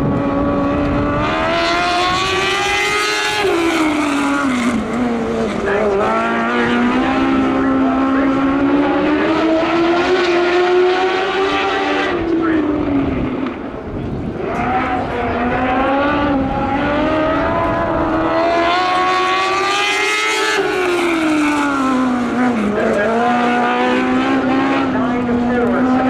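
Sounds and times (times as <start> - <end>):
race car engine at high revs: 0.0 - 26.0.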